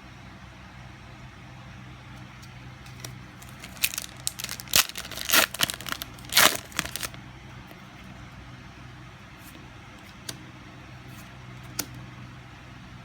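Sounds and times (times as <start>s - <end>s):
foil wrapper crinkling: 2.8s - 7.2s.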